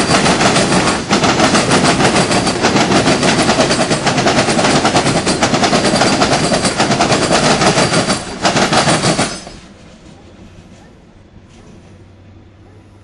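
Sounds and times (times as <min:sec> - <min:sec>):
locomotive rattling clatter: 0:00.0 - 0:10.3.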